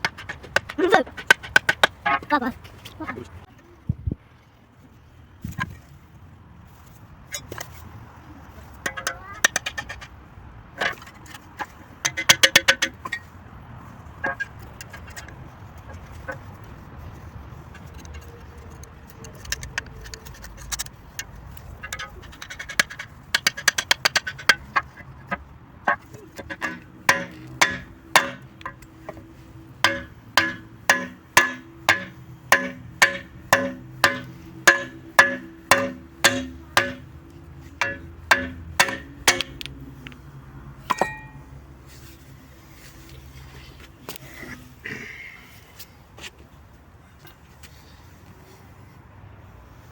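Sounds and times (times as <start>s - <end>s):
hammer striking steel shovel: 21.8s - 37.2s, 37.8s - 39.8s, 40.9s - 41.4s.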